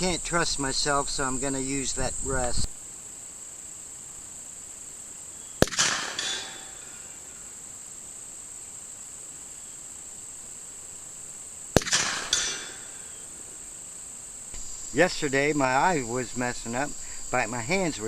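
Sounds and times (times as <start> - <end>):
crickets chirping: 0.0 - 18.0
rifle shots with echo: 5.6 - 7.1, 11.8 - 13.2.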